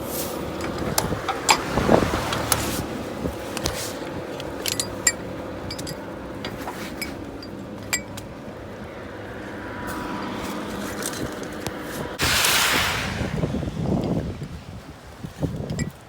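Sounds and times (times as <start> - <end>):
low truck cab drone: 0.0 - 15.9
light clicks and clinks: 3.5 - 8.3.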